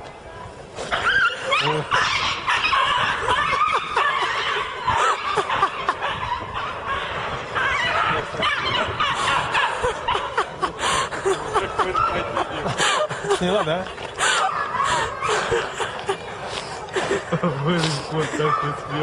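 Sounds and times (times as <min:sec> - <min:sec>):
people snickering and laughing: 0:01.2 - 0:19.0.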